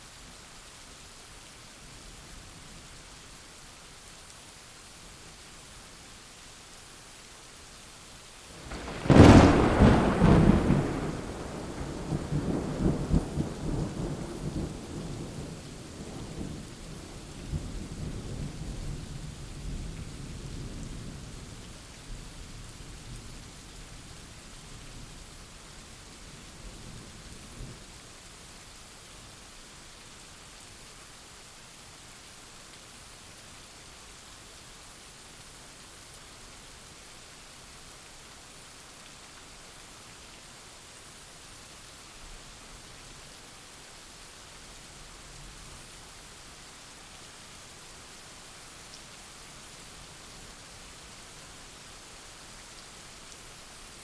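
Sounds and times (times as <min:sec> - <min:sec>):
heavy rain: 0:00.1 - 0:54.0
thunder rumbling: 0:08.6 - 0:15.4.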